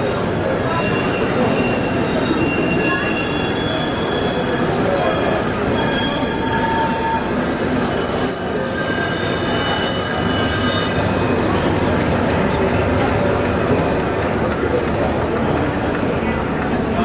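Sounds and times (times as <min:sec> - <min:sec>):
high wheel squeals: 0:00.0 - 0:11.8
steady background noise: 0:00.0 - 0:17.0
model trains running: 0:08.8 - 0:17.0.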